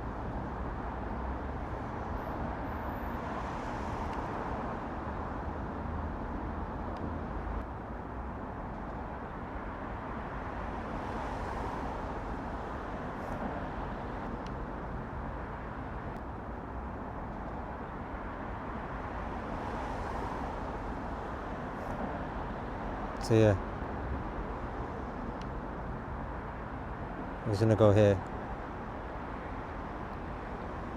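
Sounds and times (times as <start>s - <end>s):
road traffic noise: 0.0s - 30.9s.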